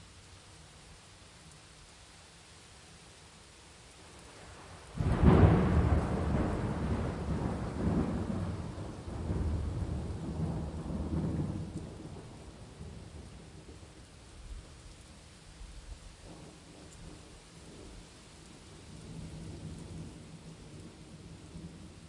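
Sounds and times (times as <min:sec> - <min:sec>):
steady rain: 0:00.0 - 0:22.0
thunder rumbling: 0:05.0 - 0:13.9.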